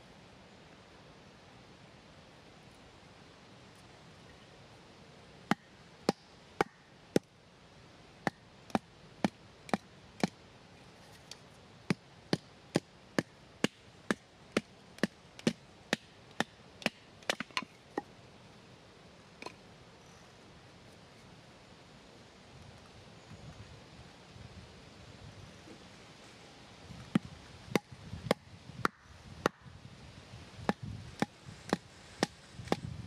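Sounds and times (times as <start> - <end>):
wood chopping strokes: 11.1 - 18.1, 30.6 - 32.9.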